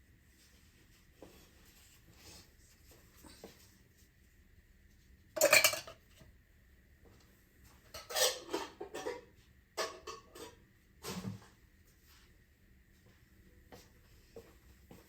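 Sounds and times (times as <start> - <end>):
cookware clattering on stovetop: 5.4 - 6.1, 7.9 - 11.3.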